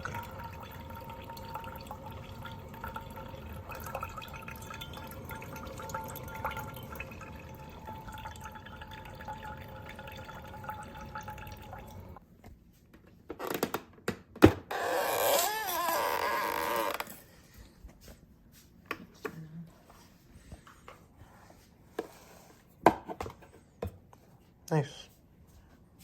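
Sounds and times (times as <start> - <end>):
water dripping in coffee maker: 0.0 - 12.2.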